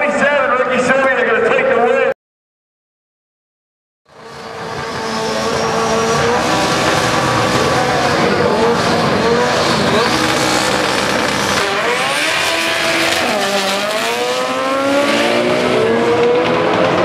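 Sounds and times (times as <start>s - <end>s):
race car engines revving: 4.1s - 17.0s.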